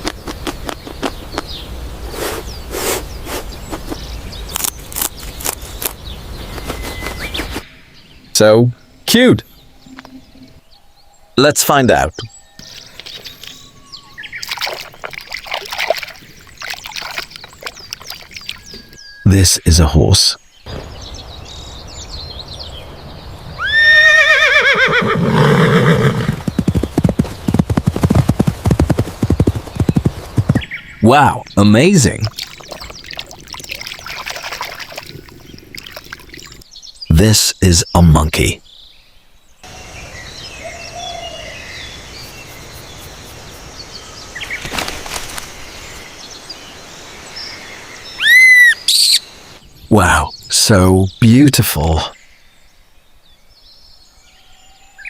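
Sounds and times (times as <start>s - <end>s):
faint bird chirps: 12.0s - 21.1s, 30.8s - 37.0s
hooves clip-clopping: 12.6s - 13.7s, 14.4s - 19.0s, 32.2s - 36.6s
horse neighing: 23.6s - 26.3s
rustle: 43.4s - 48.2s.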